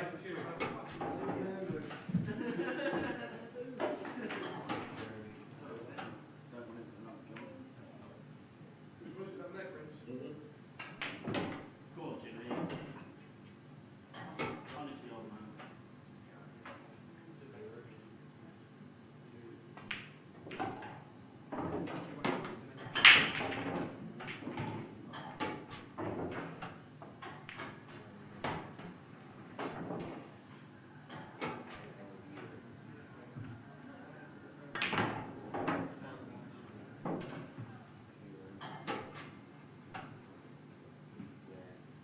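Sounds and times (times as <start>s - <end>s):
pool balls and cue clacking: 0.0s - 3.2s, 3.8s - 5.3s, 10.8s - 11.8s, 12.5s - 13.5s, 14.1s - 14.8s, 19.7s - 32.6s, 34.7s - 36.2s, 37.0s - 37.8s, 38.6s - 40.4s.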